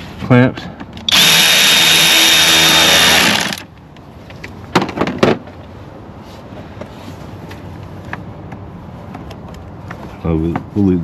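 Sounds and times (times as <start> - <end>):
power drill whining: 1.1 - 3.7.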